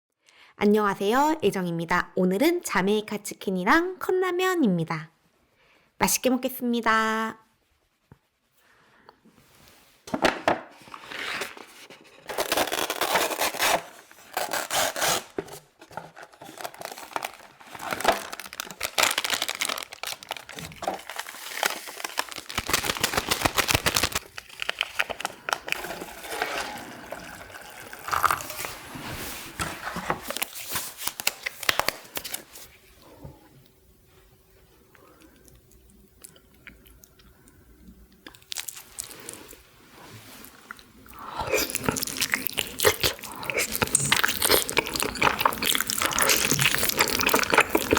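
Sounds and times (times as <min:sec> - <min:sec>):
food wrappers crinkling and tearing: 0:10.8 - 0:32.7, 0:38.2 - 0:39.6, 0:40.2 - 0:47.9.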